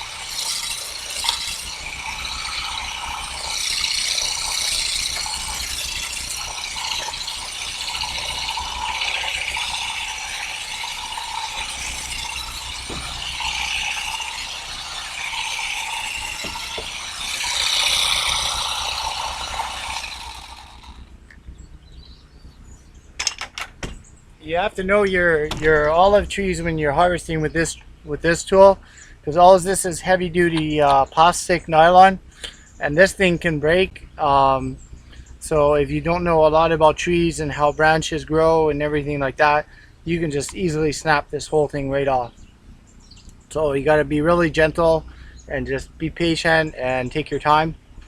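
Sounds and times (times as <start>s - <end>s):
harvesting tool mechanical clatter: 0.0s - 22.1s, 23.1s - 28.5s.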